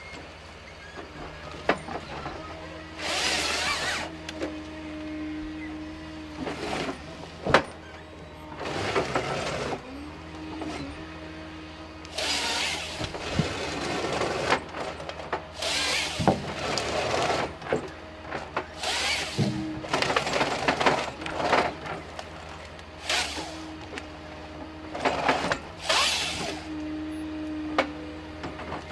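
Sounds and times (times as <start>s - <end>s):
engine humming: 0.0s - 28.9s
hydraulic whine: 0.0s - 28.9s
sawing and stripping noise: 1.0s - 28.9s
wood cracking: 12.0s - 24.1s.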